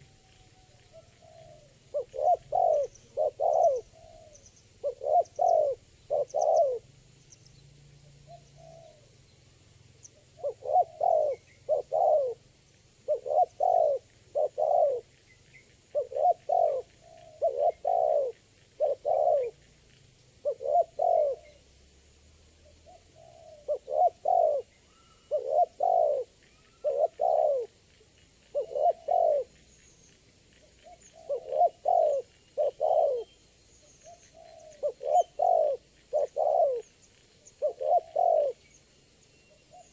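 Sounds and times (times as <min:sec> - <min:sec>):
dove cooing: 0:00.0 - 0:06.9, 0:08.0 - 0:09.2, 0:10.2 - 0:15.2, 0:15.8 - 0:19.7, 0:20.4 - 0:21.6, 0:22.6 - 0:27.8, 0:28.5 - 0:29.7, 0:30.8 - 0:33.4, 0:34.0 - 0:38.7
small birds chirping: 0:00.0 - 0:39.9.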